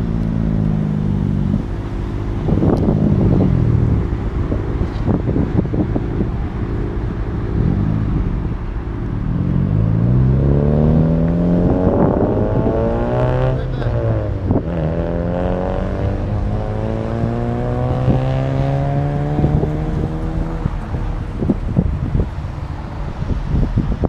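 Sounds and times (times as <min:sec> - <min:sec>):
car engines revving: 0:00.0 - 0:24.0
engine accelerating away: 0:07.4 - 0:22.6.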